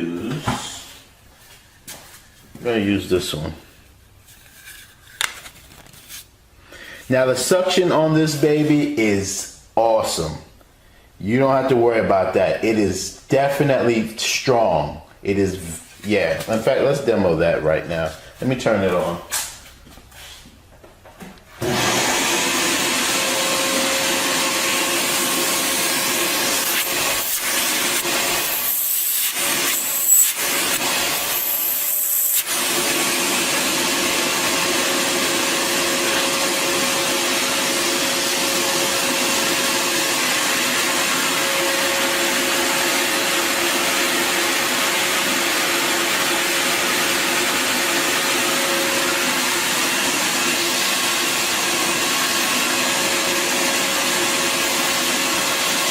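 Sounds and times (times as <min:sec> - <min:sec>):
wet dry vacuum humming: 0:21.5 - 0:55.9.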